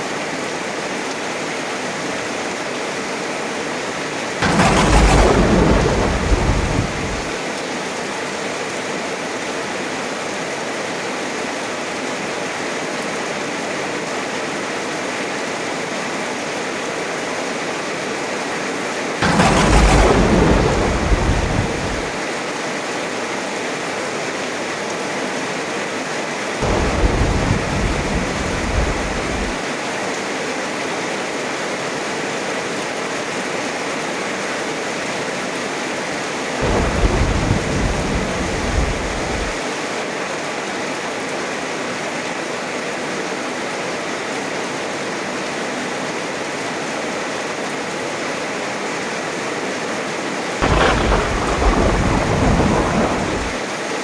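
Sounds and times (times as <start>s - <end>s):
heavy rain falling: 3.9s - 8.1s, 19.2s - 22.5s, 26.6s - 30.3s, 36.5s - 40.2s, 50.6s - 53.8s
thunder rolling: 4.4s - 7.4s, 19.2s - 22.2s, 26.6s - 29.7s, 36.6s - 39.6s, 50.6s - 53.6s.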